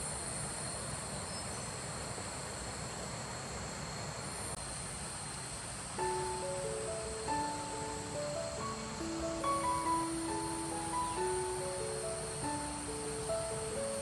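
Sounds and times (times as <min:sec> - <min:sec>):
insects chirring: 0:00.0 - 0:14.0
soft music notes: 0:06.0 - 0:14.0.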